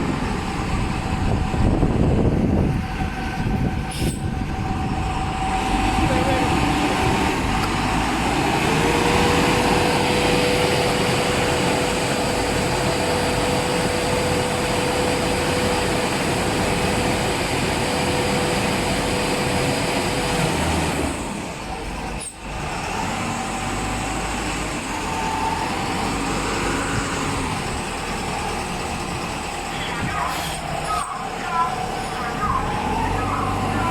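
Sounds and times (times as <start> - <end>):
machine whine: 28.4 - 33.9.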